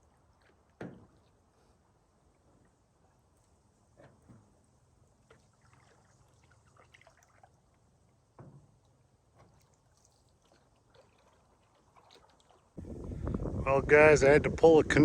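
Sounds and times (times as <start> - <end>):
water dripping off paddle: 8.7 - 12.9.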